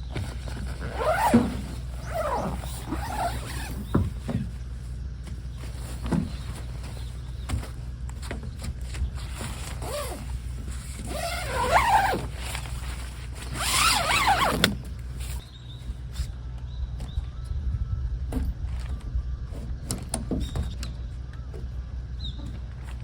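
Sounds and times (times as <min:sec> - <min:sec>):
steady low rumble: 0:00.0 - 0:11.2, 0:14.8 - 0:23.0
nylon tent fabric rustling: 0:00.0 - 0:15.5.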